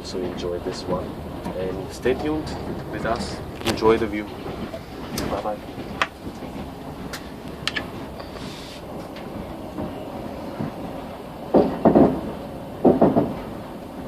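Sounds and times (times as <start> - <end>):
train rumbling on rails: 0.0 - 14.0
wheels clacking over rail joints: 0.0 - 14.0.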